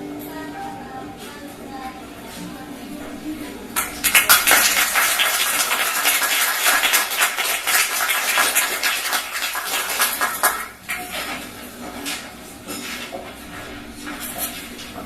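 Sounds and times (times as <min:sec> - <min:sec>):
audience clapping: 0:03.8 - 0:11.2.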